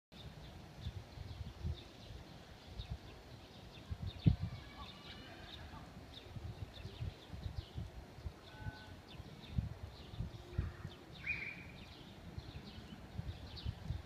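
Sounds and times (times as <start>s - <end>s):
small birds chirping: 0.2s - 14.0s
whistled bird phrase: 11.2s - 11.8s.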